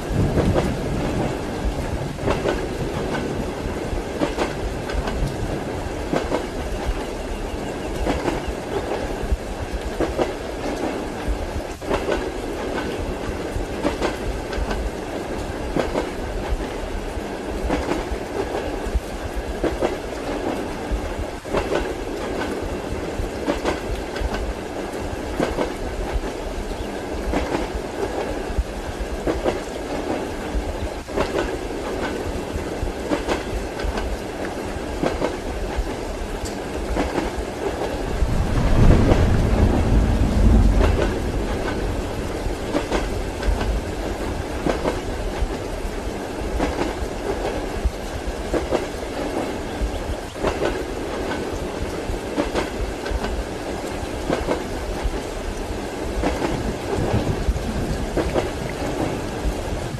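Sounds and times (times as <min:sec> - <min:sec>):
train wheels clattering over rail joints: 0:02.1 - 0:05.4.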